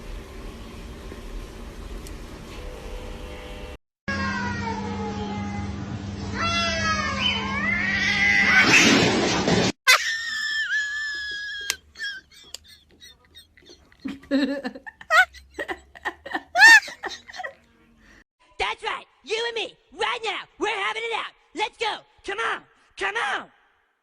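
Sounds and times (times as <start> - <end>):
cats yowling: 6.4 - 8.7.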